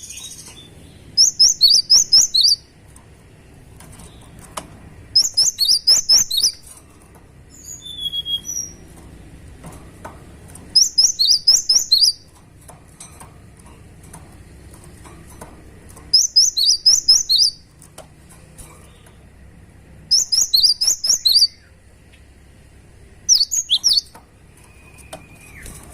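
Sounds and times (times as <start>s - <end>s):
bird rapid high chirps: 0.0s - 2.7s, 5.1s - 6.6s, 7.5s - 8.8s, 10.7s - 12.3s, 16.1s - 17.7s, 20.1s - 21.8s, 23.2s - 25.8s.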